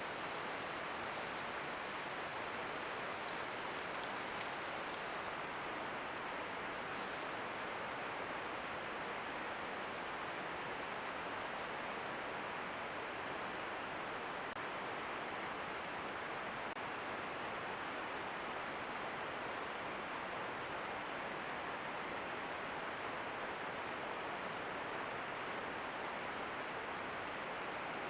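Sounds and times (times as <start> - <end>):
faint high-pitched whine: 0.0 - 28.0.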